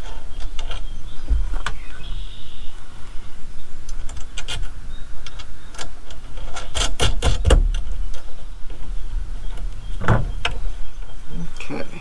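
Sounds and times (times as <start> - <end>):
metal bolts and tools clinking: 3.9 - 10.6
low rumble: 7.3 - 12.0.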